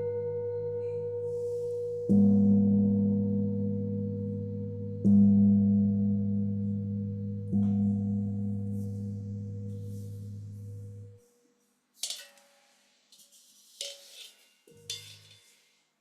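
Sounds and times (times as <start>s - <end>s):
higher bowl tone ringing: 0.0s - 11.2s
large singing bowl ringing: 0.0s - 11.2s.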